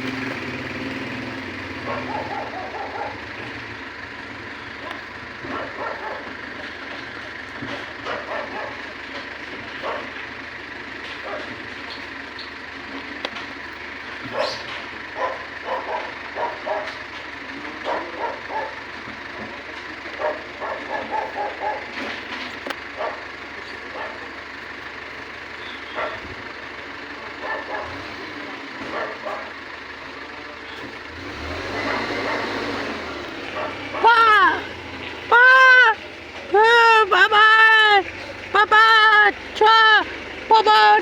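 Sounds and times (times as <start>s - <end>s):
truck engine running: 0.0s - 41.0s
dog barking: 1.8s - 3.5s, 4.8s - 6.4s, 8.0s - 8.9s, 9.8s - 10.2s, 11.2s - 11.6s, 14.3s - 17.0s, 17.8s - 18.9s, 20.1s - 22.1s, 23.0s - 24.4s, 25.9s - 26.4s, 27.4s - 28.1s, 28.8s - 29.6s, 31.8s - 32.7s, 33.4s - 34.6s.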